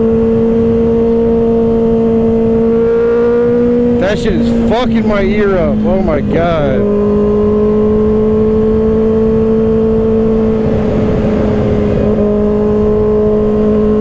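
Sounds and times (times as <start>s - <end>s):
motorcycle engine accelerating: 0.0s - 14.0s
wind rush: 10.0s - 14.0s.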